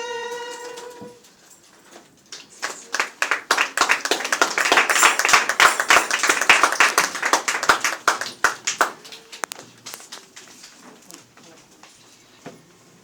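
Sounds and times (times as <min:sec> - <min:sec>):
congregation applauding: 0:02.5 - 0:10.6.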